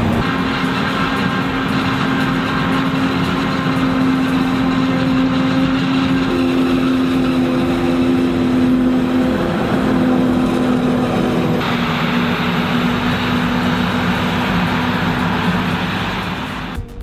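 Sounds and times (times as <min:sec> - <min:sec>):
heavy machine engine droning: 0:00.0 - 0:16.8.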